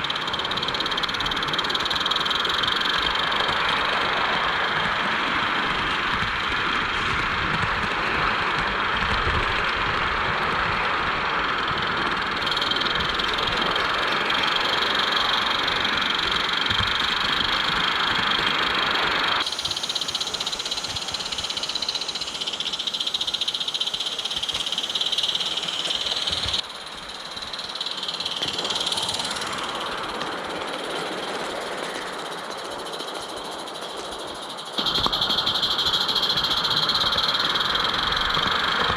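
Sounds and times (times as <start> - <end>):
model train wheels clattering: 0.0 - 4.8, 11.6 - 38.9
steam hiss: 12.3 - 38.9.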